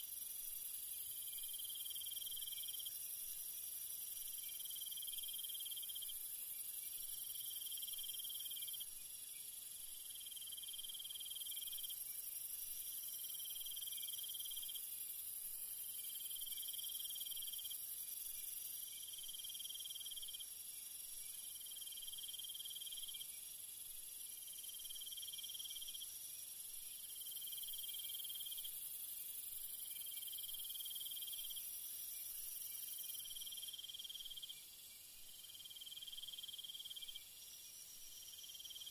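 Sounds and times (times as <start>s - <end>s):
insect drone: 0.0s - 38.9s
cricket trill: 10.0s - 38.9s.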